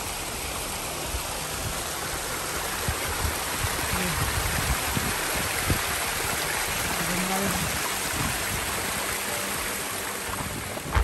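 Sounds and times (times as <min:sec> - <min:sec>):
rushing water: 0:00.0 - 0:11.0
low thumps and rumbles: 0:10.3 - 0:11.0.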